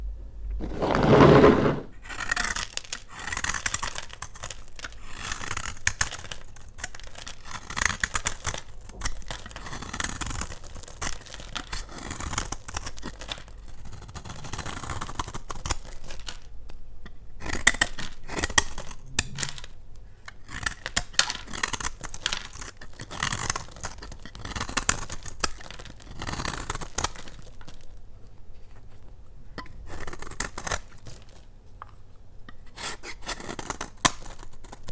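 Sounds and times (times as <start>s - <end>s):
blade cutting soap: 0.6s - 1.9s.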